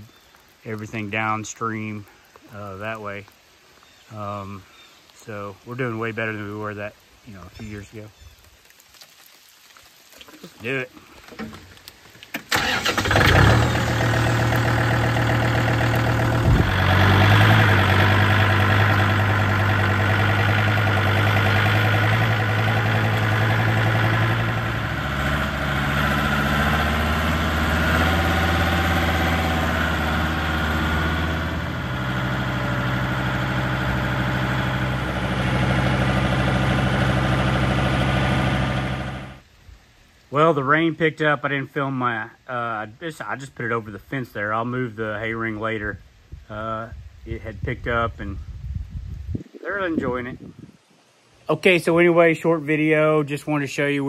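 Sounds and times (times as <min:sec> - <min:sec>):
tractor diesel engine running: 0:12.4 - 0:39.4.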